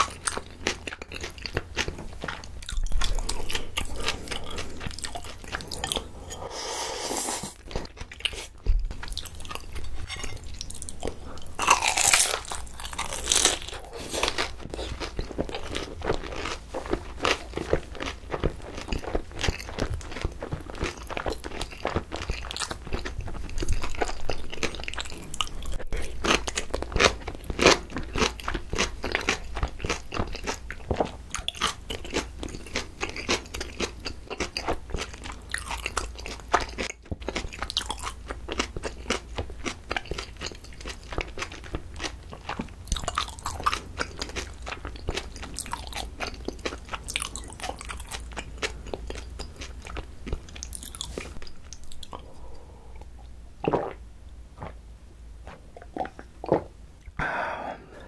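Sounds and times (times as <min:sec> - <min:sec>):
chewing food: 0:00.0 - 0:06.4, 0:07.5 - 0:54.0, 0:55.4 - 0:56.7
wet mouth sounds: 0:50.6 - 0:54.0, 0:55.4 - 0:58.0.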